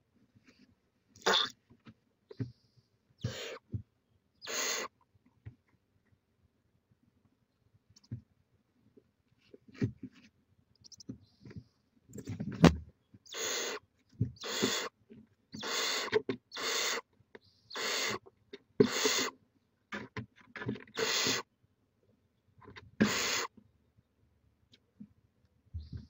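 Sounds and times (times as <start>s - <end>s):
barn owl hissing: 1.3s - 1.5s, 3.2s - 3.7s, 4.4s - 5.0s, 13.3s - 13.8s, 14.4s - 15.0s, 15.6s - 17.1s, 17.7s - 18.2s, 18.8s - 19.4s, 20.9s - 21.5s, 23.0s - 23.6s.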